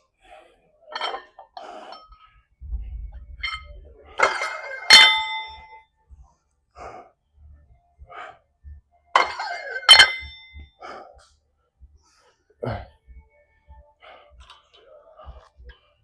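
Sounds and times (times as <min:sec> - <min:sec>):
metal gym weights clanking: 0:00.9 - 0:02.2, 0:03.4 - 0:05.8, 0:09.2 - 0:10.4.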